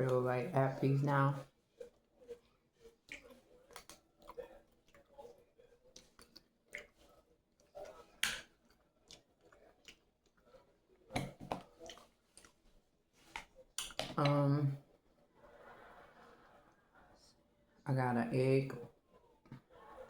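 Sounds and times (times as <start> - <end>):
mouth chewing with wet smacks: 1.7 - 14.0.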